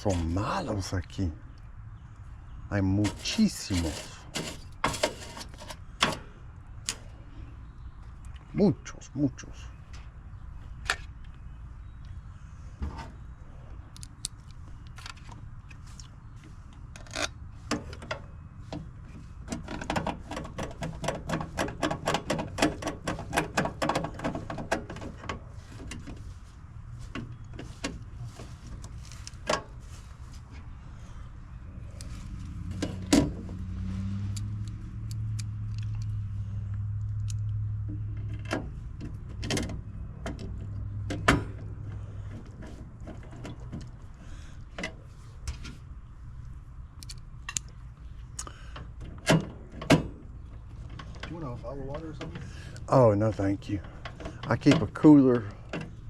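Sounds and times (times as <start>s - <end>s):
metallic clicks of hand tools: 34.3s - 36.2s.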